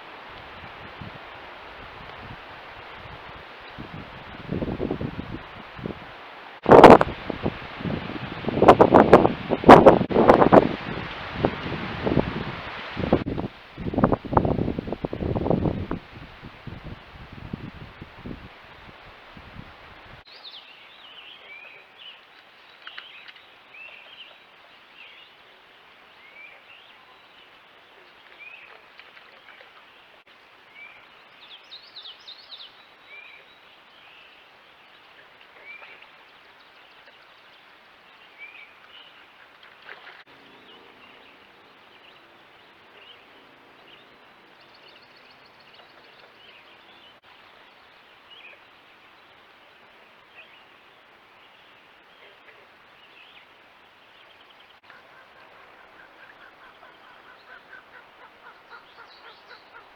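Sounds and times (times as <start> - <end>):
background hiss: 0.0 - 28.7, 29.9 - 59.9
birds chirping: 54.2 - 59.9.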